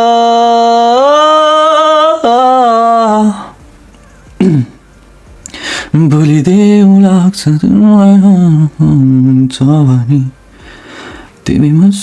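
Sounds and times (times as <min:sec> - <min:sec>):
man singing a long note: 0:00.0 - 0:03.6
breathy noise: 0:05.4 - 0:06.0, 0:10.4 - 0:11.4.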